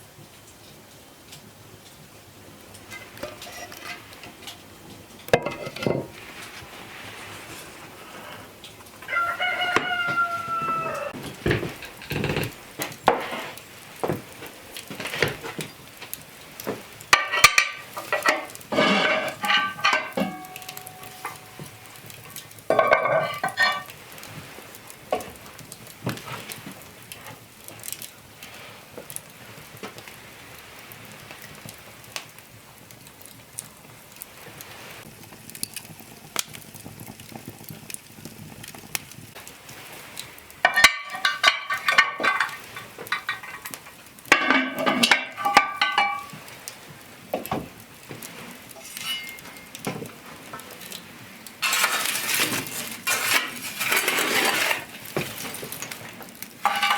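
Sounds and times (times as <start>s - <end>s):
food sizzling in a pan: 2.7s - 27.4s, 28.3s - 56.9s
cookware clinking and scraping: 2.8s - 4.6s, 5.2s - 6.7s, 9.6s - 13.6s, 17.1s - 24.0s, 40.6s - 46.4s, 48.7s - 50.0s, 51.6s - 56.0s, 56.6s - 56.9s
chickens calling: 9.0s - 11.2s.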